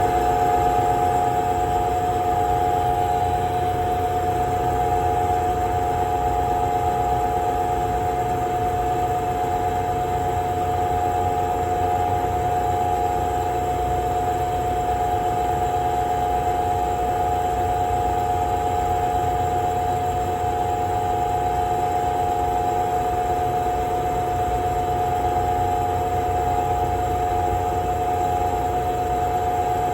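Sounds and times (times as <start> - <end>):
exhaust fan whining: 0.0 - 8.3.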